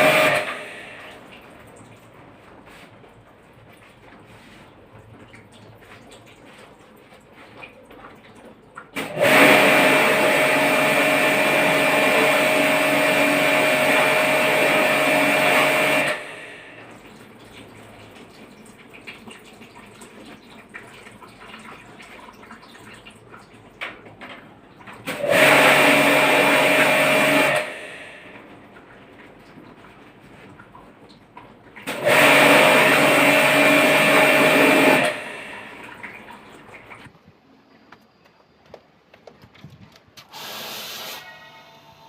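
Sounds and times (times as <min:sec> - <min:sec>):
pump motor hum: 0:00.0 - 0:37.2, 0:40.2 - 0:42.0
water jet spraying: 0:40.2 - 0:41.3.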